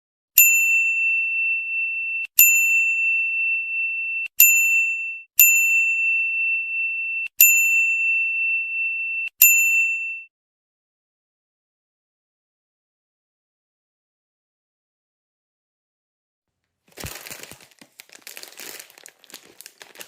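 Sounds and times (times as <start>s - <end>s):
small metal bell dings: 0.4s - 10.3s.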